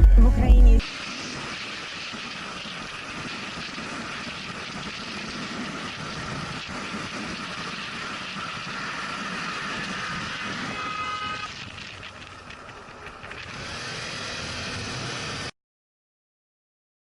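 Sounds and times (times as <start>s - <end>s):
vehicle road and engine noise: 0.8s - 15.5s.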